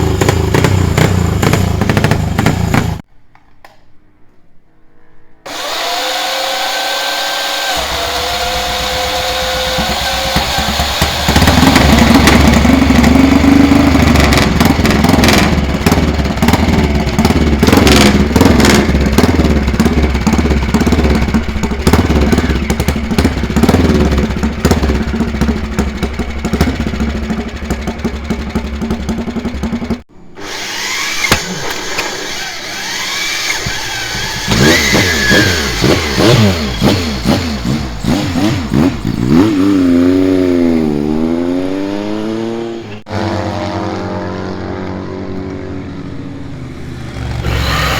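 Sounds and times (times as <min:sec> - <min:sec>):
second motorcycle engine revving: 0:00.0 - 0:03.1, 0:05.5 - 0:47.9
motorcycle engine throttle blips: 0:07.8 - 0:30.0.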